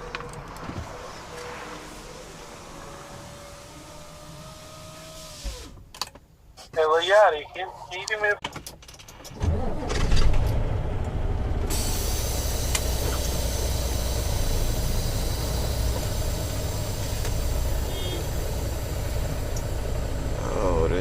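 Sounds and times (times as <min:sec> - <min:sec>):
truck diesel engine rumble: 0:09.4 - 0:21.0.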